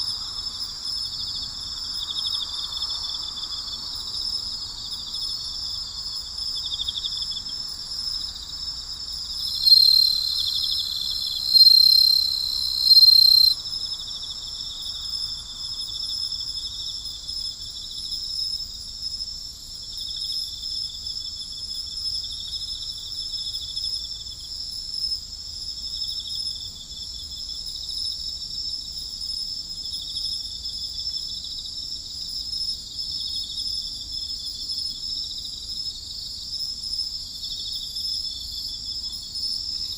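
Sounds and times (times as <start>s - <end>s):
crickets trilling: 0.0s - 31.4s
loud high insect trill: 6.1s - 15.8s.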